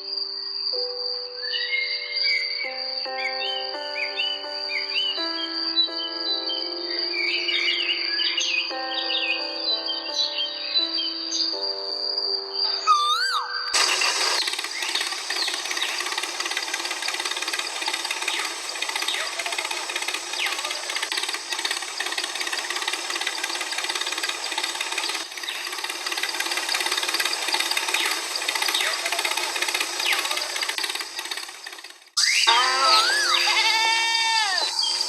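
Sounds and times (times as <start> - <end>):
small power tool running: 13.8 - 35.0.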